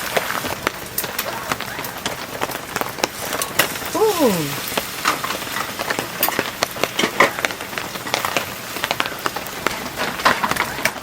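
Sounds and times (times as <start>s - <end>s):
heavy rain falling: 0.0s - 11.0s
person's short falling vocal sound: 4.0s - 4.6s.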